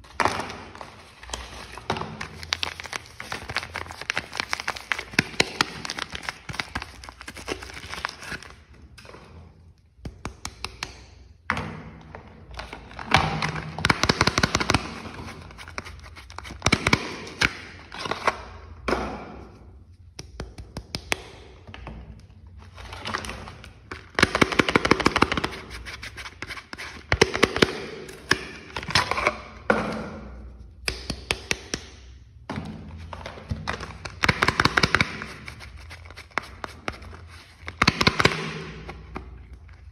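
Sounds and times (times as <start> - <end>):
soap packaging crinkling: 0.0 - 8.7, 13.9 - 17.1, 24.1 - 28.2, 33.6 - 39.9.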